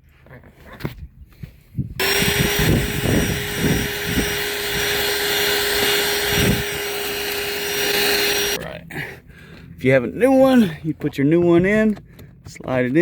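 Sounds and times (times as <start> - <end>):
vacuum cleaner whining: 2.0 - 8.6.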